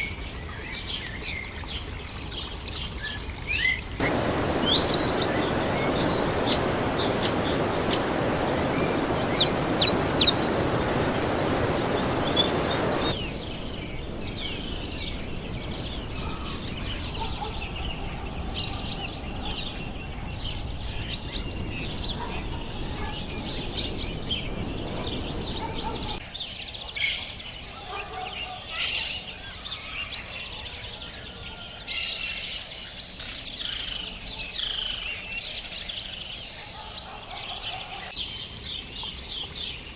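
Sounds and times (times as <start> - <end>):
loud steady rushing noise: 4.0 - 15.8
birds chirping and calling: 4.0 - 26.2
forest ambience: 4.0 - 26.2.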